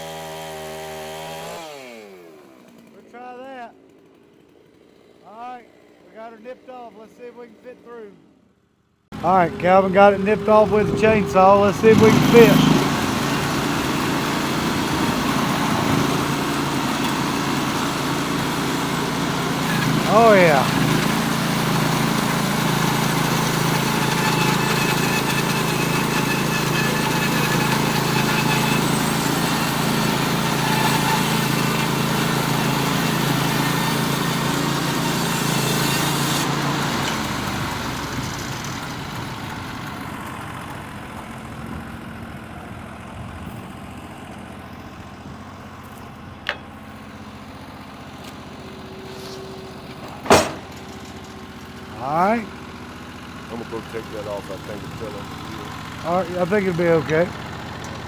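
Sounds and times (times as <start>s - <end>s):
band sawmill cutting log: 0.0s - 7.0s, 9.1s - 58.0s
sharp knock: 50.2s - 50.7s.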